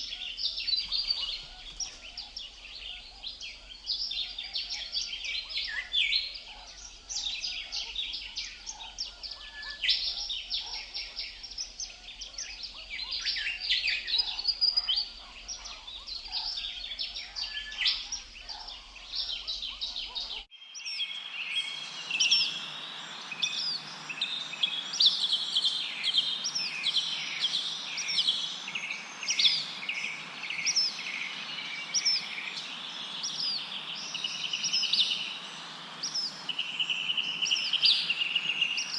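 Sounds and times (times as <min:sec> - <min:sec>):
songbirds chirping and singing: 0:00.0 - 0:38.9
sweeping bird chirps: 0:00.0 - 0:38.9
wind rustling through leaves: 0:20.4 - 0:38.9.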